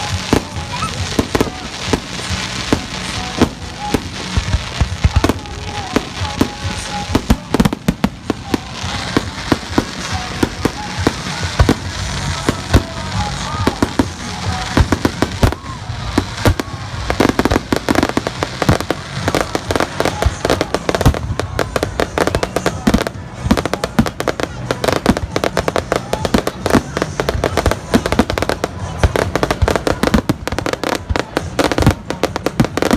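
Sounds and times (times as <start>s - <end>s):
fireworks bangs and crackles: 0.0s - 32.9s.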